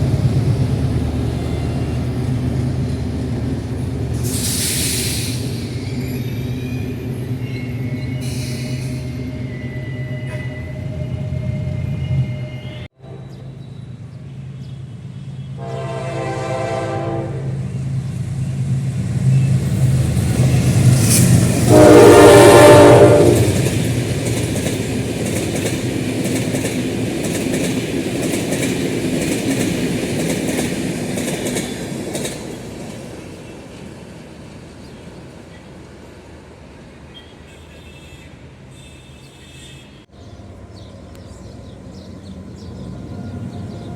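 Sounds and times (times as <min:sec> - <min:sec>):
locomotive horn blasts: 0:15.5 - 0:17.6, 0:21.7 - 0:23.7
wheels clacking on rail joints: 0:23.2 - 0:33.8.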